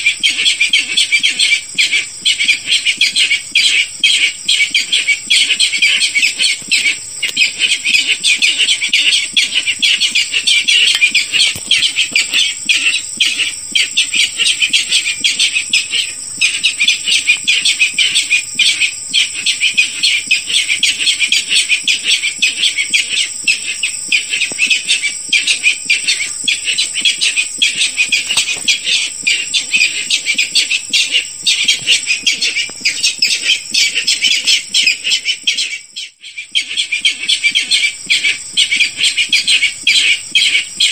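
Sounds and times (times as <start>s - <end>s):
rapid shrill bird calls: 0.0s - 40.9s.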